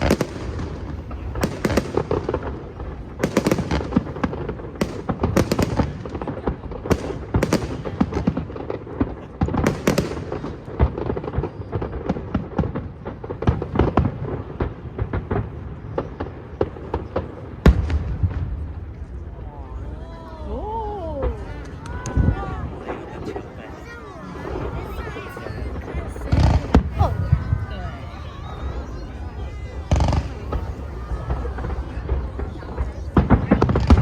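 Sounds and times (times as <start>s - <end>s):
fireworks booms and crackles: 0.0s - 34.0s
loud firework bang: 24.4s - 34.0s.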